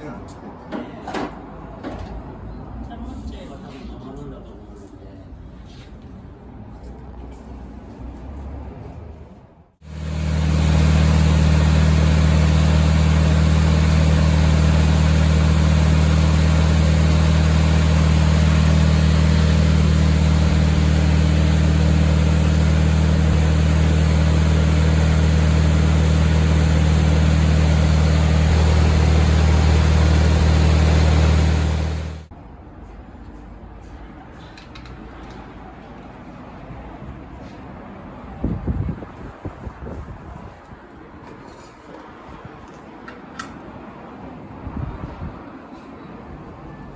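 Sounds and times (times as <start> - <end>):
machine engine drone: 9.8 - 32.3.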